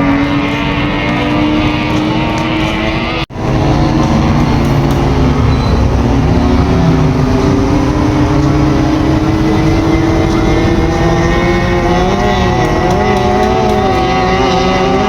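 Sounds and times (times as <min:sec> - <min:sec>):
power boat engines idling: 0:00.0 - 0:14.9.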